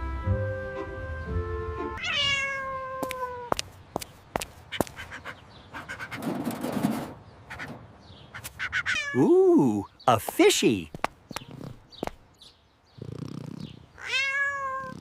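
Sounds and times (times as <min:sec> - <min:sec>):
cat meowing: 0:02.0 - 0:03.5, 0:08.7 - 0:09.2, 0:14.0 - 0:15.0.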